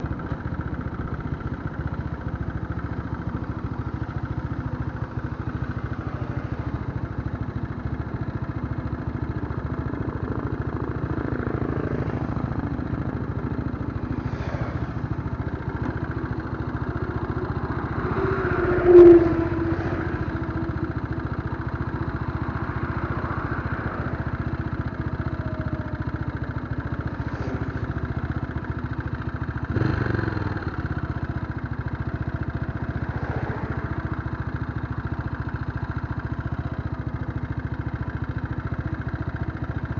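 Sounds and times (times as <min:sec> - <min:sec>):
motorcycle engine droning: 0:00.0 - 0:39.9
brief pitched tone: 0:18.0 - 0:20.0.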